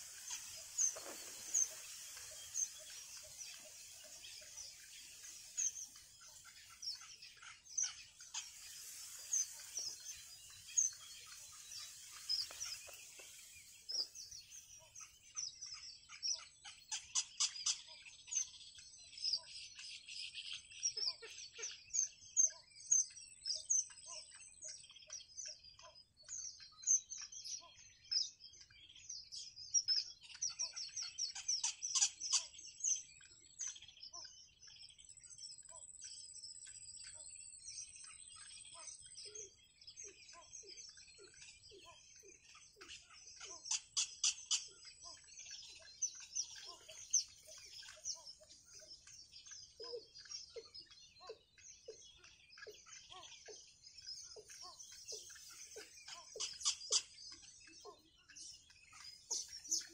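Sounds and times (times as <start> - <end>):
high-pitched bird chirping: 0.0 - 19.5, 35.0 - 59.9.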